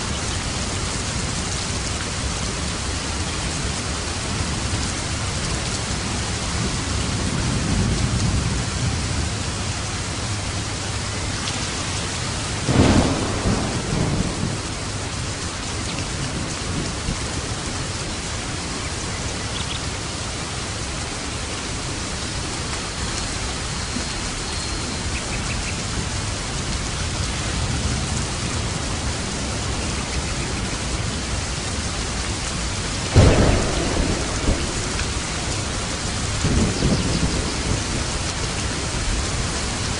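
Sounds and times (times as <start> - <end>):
thunder rumble: 0.0 - 19.3, 25.4 - 39.9
heavy rain: 0.0 - 39.9
sharp thunder claps: 12.6 - 15.3, 33.0 - 39.3.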